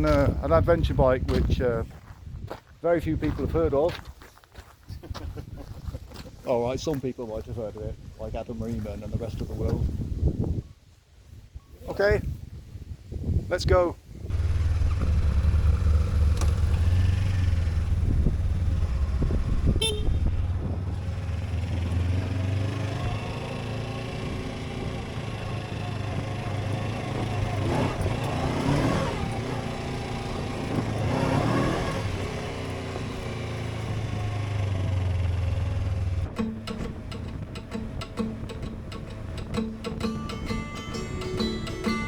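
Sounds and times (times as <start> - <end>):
motorcycle engine revving: 14.3 - 42.0.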